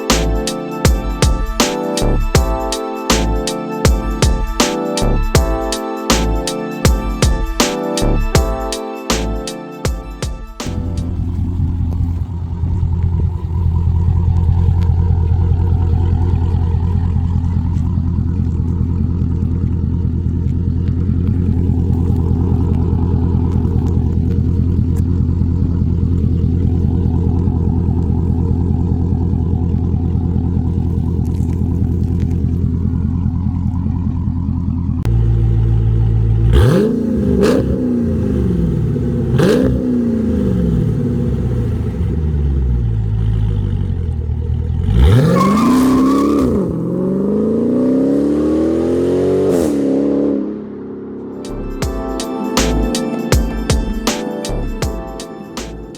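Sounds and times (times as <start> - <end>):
car engine drone from cabin: 10.8 - 45.4
engine revving up and down: 35.1 - 51.8.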